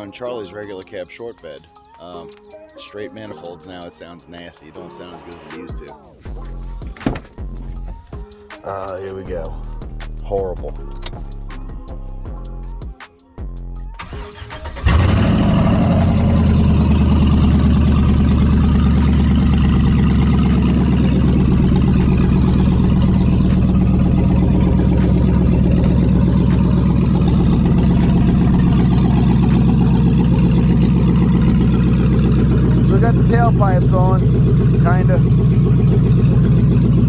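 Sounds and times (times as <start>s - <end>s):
truck engine idling loudly: 14.1s - 37.0s.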